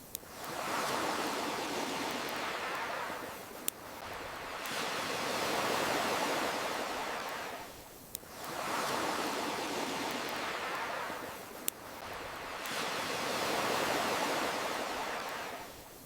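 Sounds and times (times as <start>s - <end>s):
fire crackling pops: 0.0s - 1.0s, 2.0s - 4.9s, 7.6s - 8.6s, 9.9s - 12.8s
ocean waves washing: 0.2s - 15.9s.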